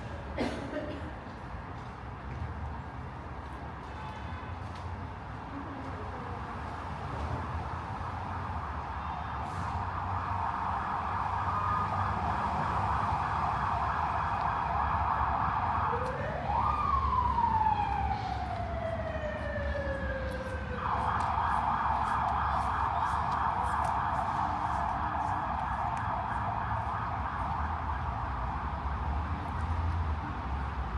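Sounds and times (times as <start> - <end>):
siren slow wail: 9.8 - 29.2
emergency siren yelping: 9.9 - 28.5.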